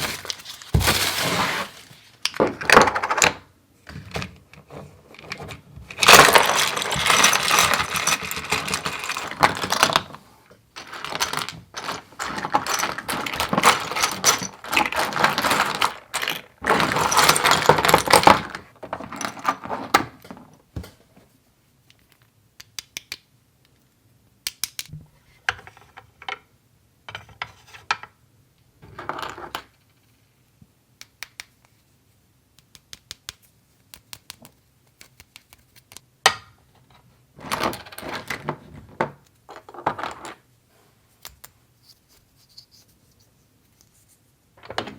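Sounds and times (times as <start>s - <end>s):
plastic toy pieces clattering: 0.0s - 3.3s, 5.1s - 10.2s, 10.8s - 20.2s.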